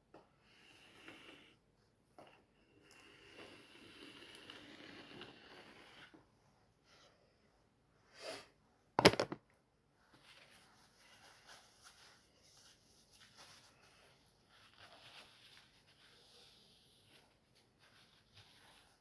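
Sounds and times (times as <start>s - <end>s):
rubbing and rustling of wiping: 10.0s - 19.0s.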